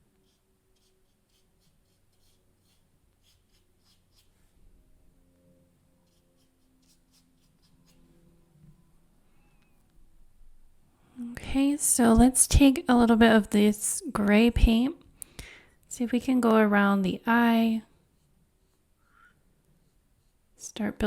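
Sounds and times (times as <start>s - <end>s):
low room hum: 0.0s - 21.0s
paintbrush strokes on paper: 0.2s - 4.6s, 6.0s - 8.2s, 18.0s - 19.2s, 19.8s - 20.6s.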